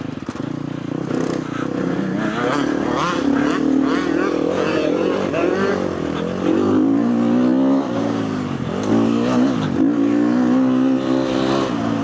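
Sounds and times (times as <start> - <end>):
motocross bike engine revving: 0.2 - 12.0.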